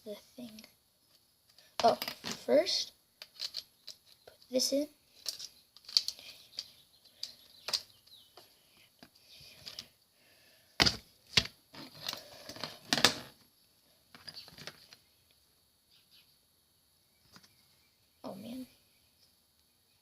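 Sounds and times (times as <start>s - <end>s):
plastic parts clicking and knocking: 3.2s - 4.5s, 5.2s - 9.9s, 10.8s - 13.4s, 14.1s - 15.0s.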